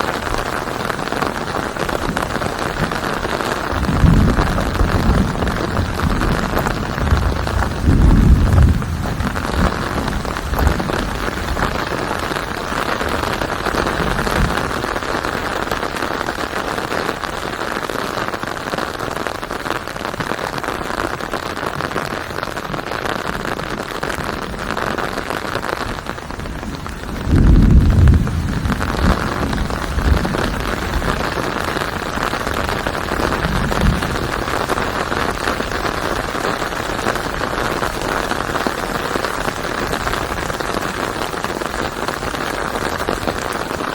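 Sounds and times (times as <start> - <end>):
rain hiss: 0.0 - 43.9
low rumble: 3.8 - 11.2, 26.8 - 31.0.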